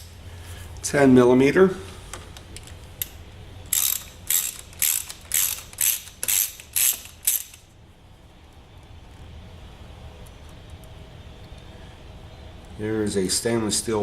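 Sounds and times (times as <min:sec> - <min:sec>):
hand ratchet clicking: 0:02.6 - 0:07.7.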